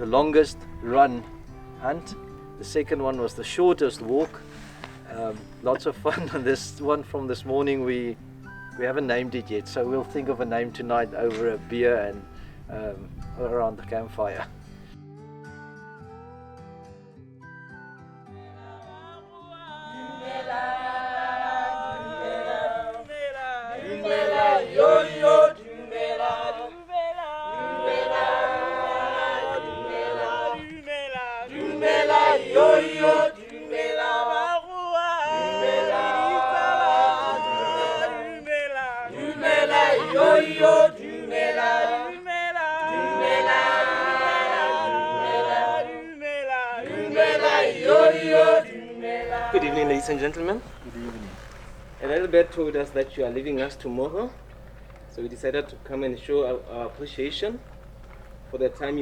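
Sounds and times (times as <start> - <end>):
group singing in harmony: 18.4 - 51.4.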